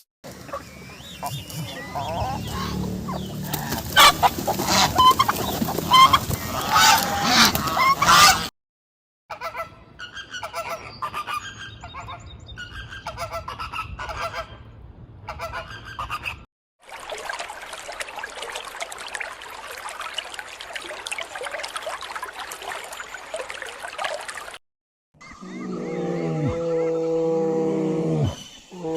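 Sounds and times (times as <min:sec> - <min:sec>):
flock of geese calling: 0:01.2 - 0:08.4
geese honking: 0:01.2 - 0:08.5.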